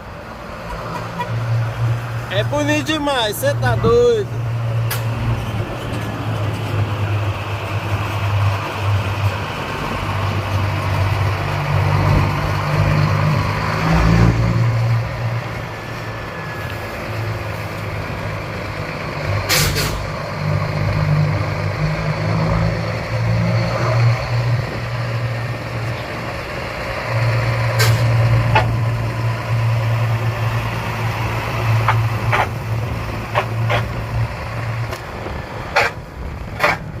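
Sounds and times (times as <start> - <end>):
truck diesel engine droning: 0.0 - 37.0
air brake hiss: 19.5 - 20.0.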